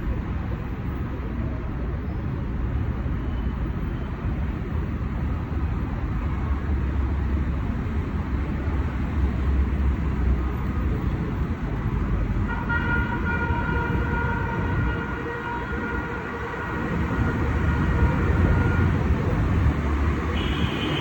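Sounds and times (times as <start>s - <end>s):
heavy road traffic rumbling: 0.0s - 21.0s
multi-tone horn: 20.3s - 21.0s.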